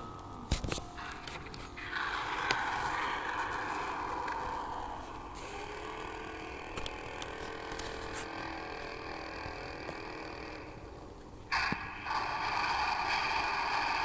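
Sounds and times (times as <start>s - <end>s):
low droning hum: 0.0s - 14.0s
sharp clicks and creaks: 0.5s - 14.0s.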